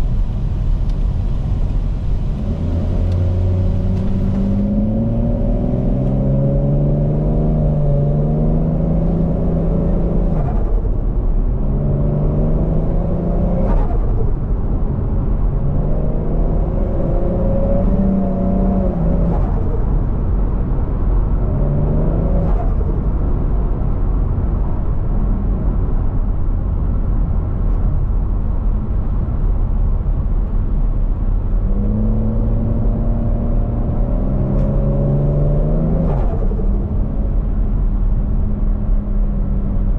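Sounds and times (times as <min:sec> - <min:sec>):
car engine revving through gears: 0:02.2 - 0:11.0, 0:11.6 - 0:14.2, 0:15.5 - 0:19.9, 0:21.4 - 0:23.2, 0:31.4 - 0:39.9.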